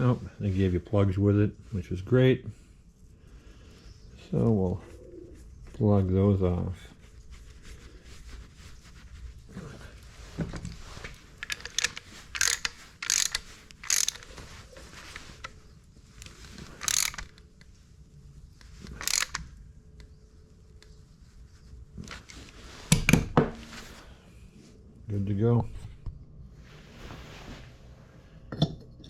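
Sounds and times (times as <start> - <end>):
ratchet wrench clicking: 11.4 - 14.3, 16.8 - 17.4, 18.9 - 19.5
tool clattering: 11.4 - 14.4, 16.8 - 17.4, 18.9 - 19.4.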